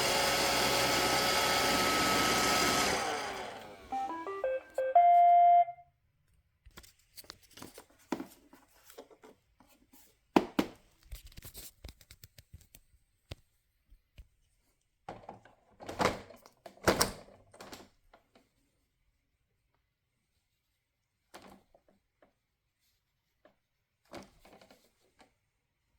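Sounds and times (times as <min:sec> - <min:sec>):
robot vacuum beep: 0:03.2 - 0:05.8.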